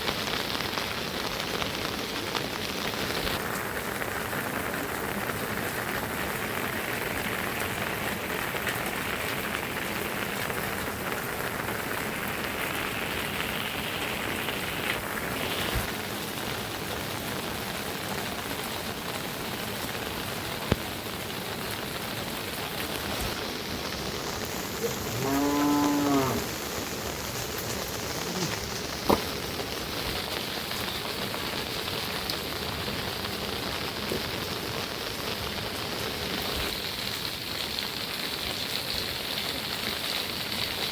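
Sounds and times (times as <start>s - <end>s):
steady rain falling: 0.0s - 40.9s
cow mooing: 24.8s - 26.6s.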